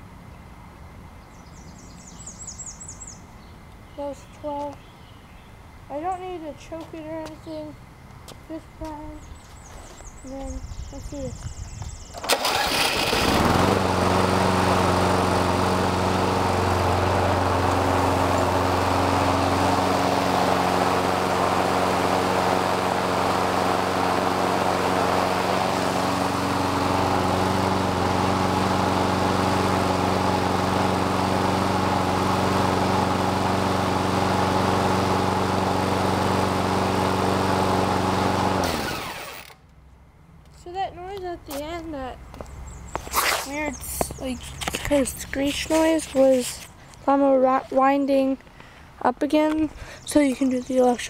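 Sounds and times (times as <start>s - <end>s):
lawn mower engine running: 12.1s - 39.9s.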